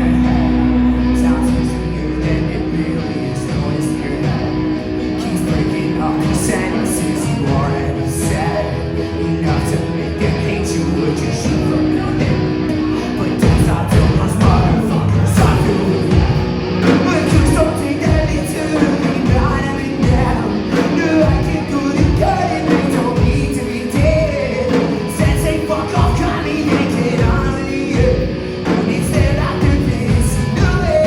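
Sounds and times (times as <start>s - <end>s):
guitars: 0.0s - 31.0s
person singing: 0.0s - 31.0s
rock band playing loudly: 0.0s - 31.0s
steady drum beat: 11.5s - 31.0s.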